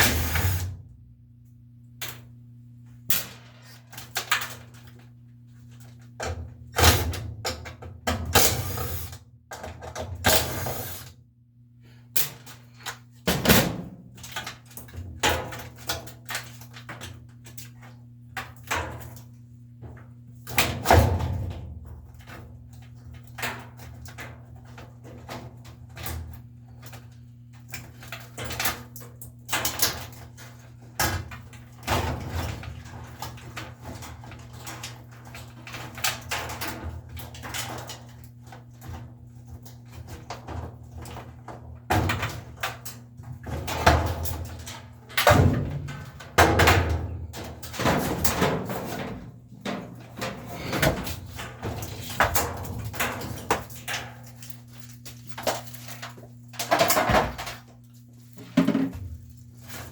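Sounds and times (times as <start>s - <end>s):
low electrical hum: 0.0s - 59.9s
hard parts knocking and rattling: 58.4s - 59.3s.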